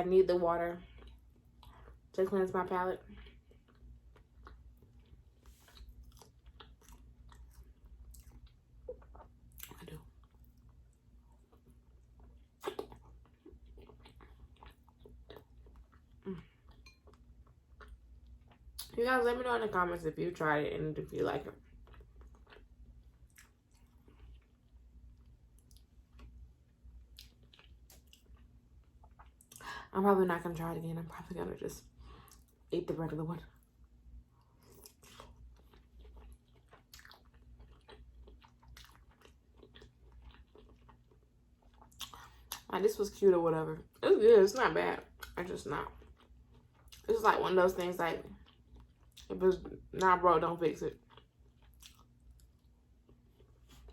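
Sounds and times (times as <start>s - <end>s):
close chewing: 3.2s - 19.0s, 34.5s - 42.7s, 51.0s - 53.9s.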